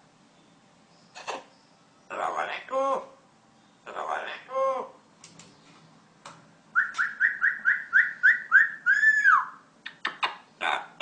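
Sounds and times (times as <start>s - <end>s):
parrot whistling: 6.7s - 9.6s.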